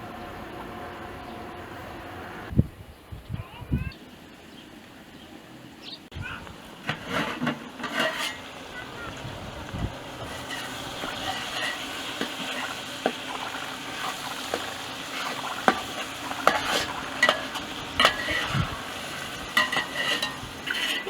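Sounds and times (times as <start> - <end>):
potatoes sizzling in a pan: 6.6 - 21.0
utensil knocking and scraping pan: 6.8 - 8.5, 10.2 - 21.0.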